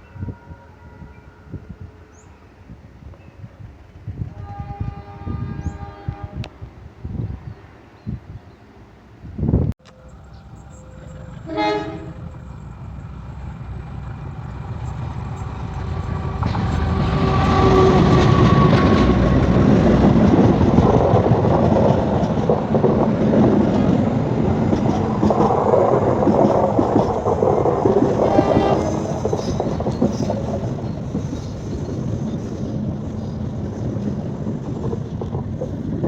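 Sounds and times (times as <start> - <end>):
locomotive engine and rail rumble: 0.0 - 36.0
locomotive horn blast: 4.3 - 6.5, 9.9 - 12.4, 16.2 - 19.3, 28.0 - 29.5.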